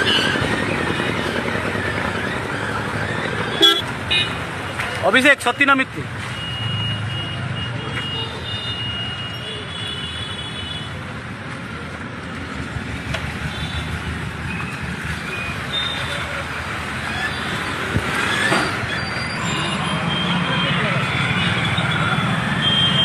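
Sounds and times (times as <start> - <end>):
road traffic passing: 0.0 - 23.0
car horn toots: 3.6 - 4.4.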